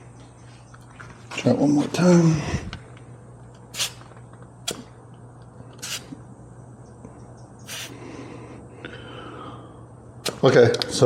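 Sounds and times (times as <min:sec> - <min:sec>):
faint steady hum: 0:00.0 - 0:11.0
air hissing from tire valve: 0:03.7 - 0:04.1, 0:05.8 - 0:06.2, 0:07.6 - 0:08.0.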